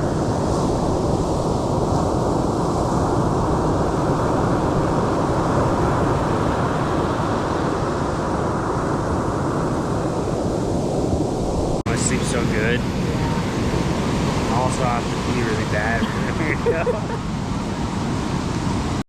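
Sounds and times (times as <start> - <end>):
ocean surf: 0.0 - 19.0
wind blowing on microphone: 0.0 - 19.0.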